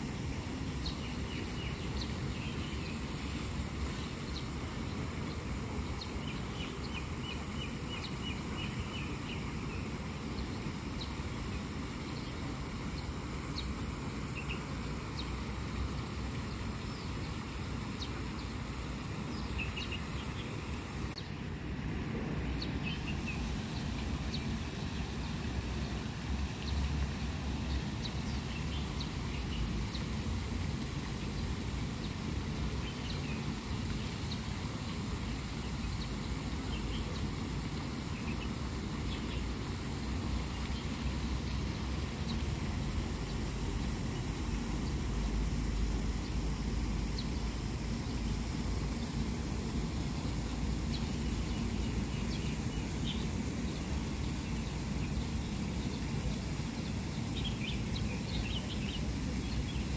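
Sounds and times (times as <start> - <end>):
small birds chirping: 0.8 - 21.4, 22.5 - 59.9
low outdoor rumble: 20.2 - 59.9.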